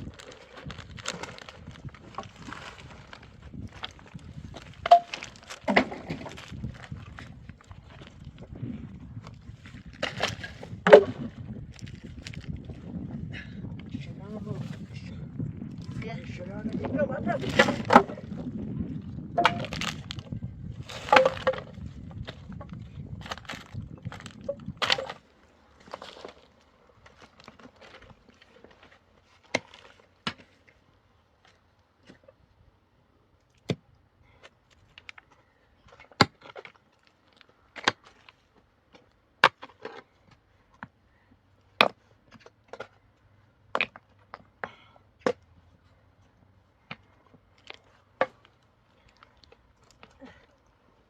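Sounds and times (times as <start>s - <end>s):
sharp cracks and knocks: 21.0s - 21.8s.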